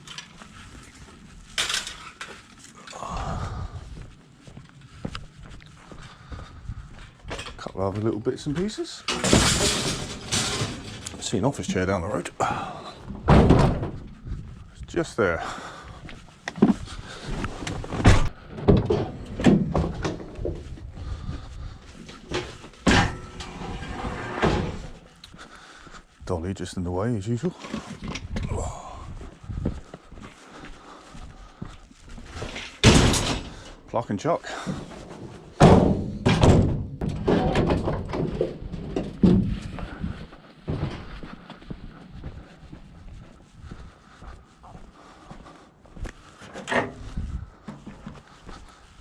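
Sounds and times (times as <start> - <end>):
scrap metal thrown into truck: 9.1 - 11.2
knocks and bangs: 13.1 - 14.1, 35.6 - 39.6.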